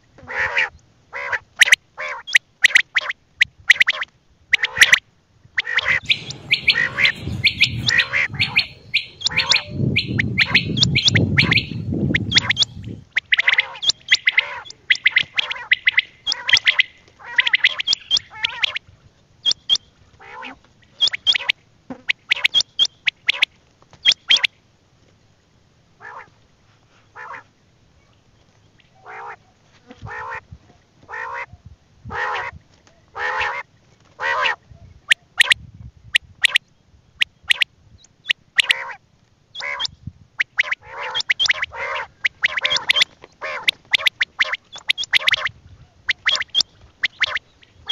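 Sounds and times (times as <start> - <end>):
quail calling: 0.2 - 5.0, 5.6 - 18.8, 19.4 - 24.5, 28.8 - 30.5, 31.1 - 31.5, 32.1 - 35.6, 36.2 - 36.6, 37.2 - 39.0, 39.6 - 47.9
low rumble: 5.8 - 13.2.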